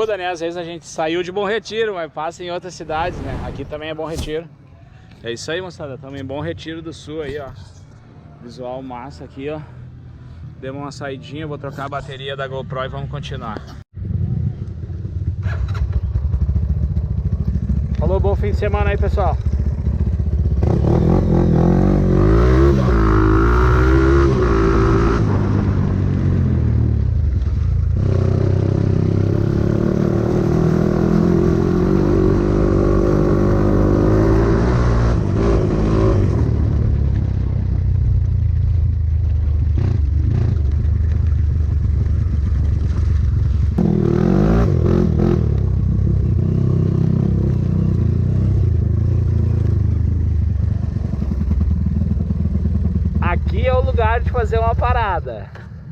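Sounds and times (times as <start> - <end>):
motorcycle engine revving: 14.0 - 53.5.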